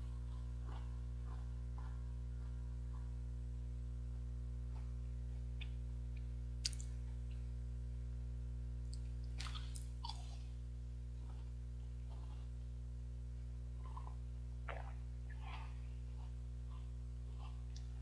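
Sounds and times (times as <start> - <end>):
steady low hum: 0.0 - 18.0
chocolate bar crunching: 6.6 - 7.0, 8.9 - 10.4.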